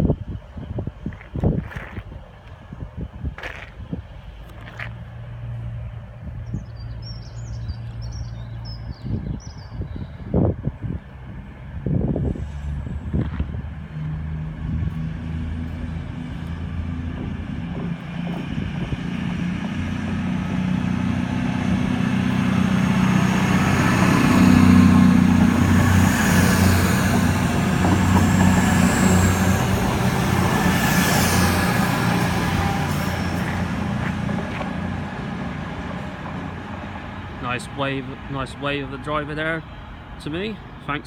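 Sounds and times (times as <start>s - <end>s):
diesel train engines droning: 0.0s - 41.0s
wheel and rail noise: 11.0s - 39.0s.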